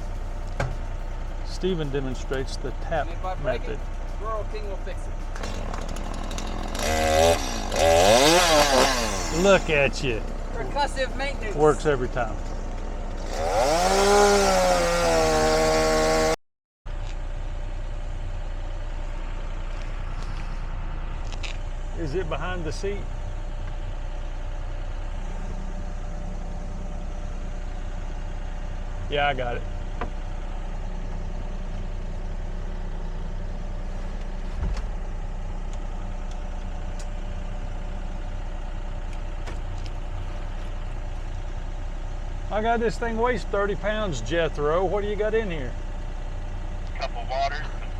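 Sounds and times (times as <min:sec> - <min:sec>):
dull thump: 0:00.0 - 0:01.3, 0:34.5 - 0:35.0
chainsaw revving: 0:00.0 - 0:16.4
quiet engine drone: 0:00.0 - 0:47.9.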